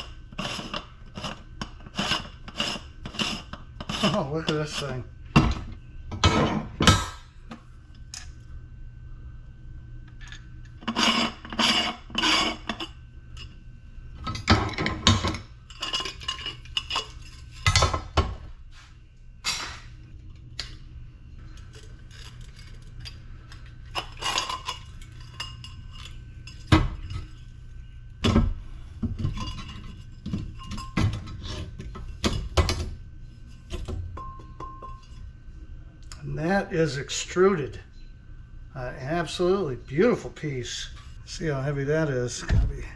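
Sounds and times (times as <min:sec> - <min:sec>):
metal scraping: 0:10.8 - 0:13.6.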